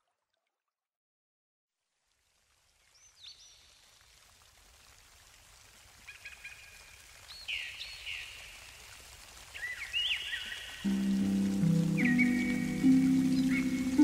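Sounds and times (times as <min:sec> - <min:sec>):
faint steady hiss: 0:01.8 - 0:14.0
birds chirping: 0:09.6 - 0:14.0.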